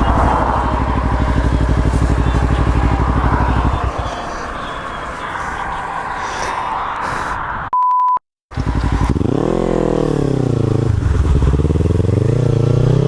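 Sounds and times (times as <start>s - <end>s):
motorcycle engine revving: 0.0s - 4.6s, 8.5s - 13.0s
censor bleep: 7.7s - 8.2s.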